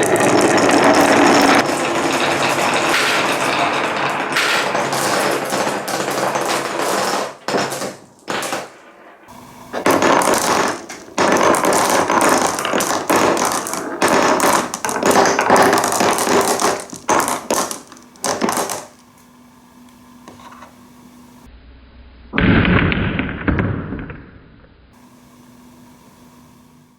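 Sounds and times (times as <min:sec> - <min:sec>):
marble clattering on wooden run: 0:00.0 - 0:19.1.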